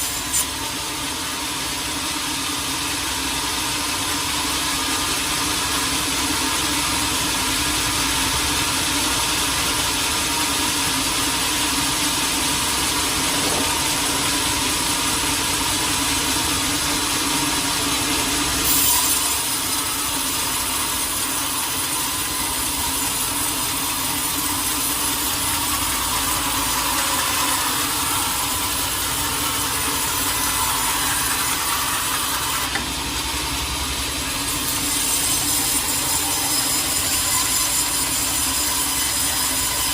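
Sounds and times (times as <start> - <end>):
saw cutting through log: 0.0 - 39.9
motor running: 12.5 - 16.2.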